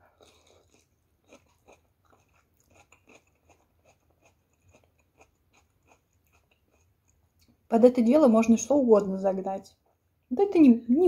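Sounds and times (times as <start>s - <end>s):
chewing crunchy fried snacks: 0.0s - 7.6s.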